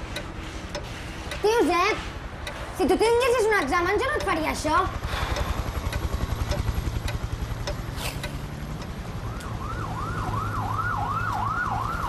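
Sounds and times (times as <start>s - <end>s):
siren-like wail: 8.9s - 12.0s.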